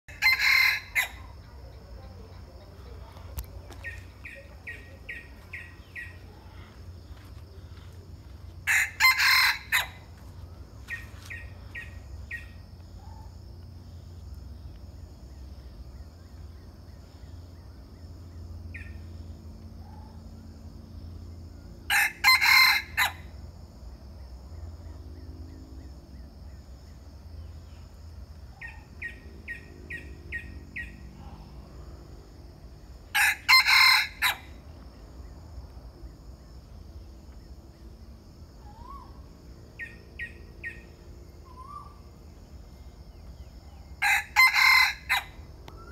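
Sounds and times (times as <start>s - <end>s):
rooster crowing: 0.1s - 1.4s, 8.6s - 10.1s, 21.9s - 23.3s, 33.1s - 34.6s, 44.0s - 45.5s.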